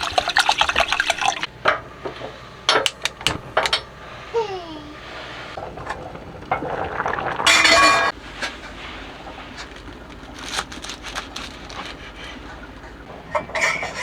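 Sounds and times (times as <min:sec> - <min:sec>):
dishes and utensils clinking: 0:07.5 - 0:08.1, 0:13.1 - 0:14.0.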